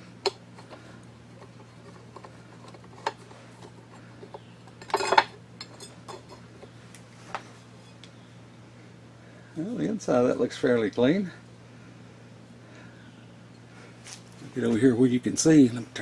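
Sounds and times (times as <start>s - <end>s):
steady low hum: 0.0s - 16.0s
metal parts clinking: 4.3s - 6.4s
metal clatter: 4.7s - 6.4s.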